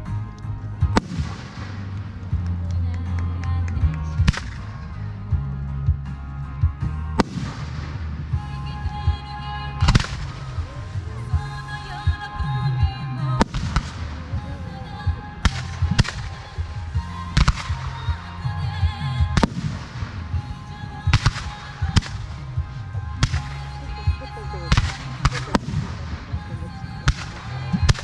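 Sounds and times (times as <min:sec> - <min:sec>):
backing music: 0:00.0 - 0:28.0
woman singing pop ballad: 0:02.6 - 0:04.3, 0:08.4 - 0:22.6, 0:23.2 - 0:25.6, 0:26.3 - 0:28.0.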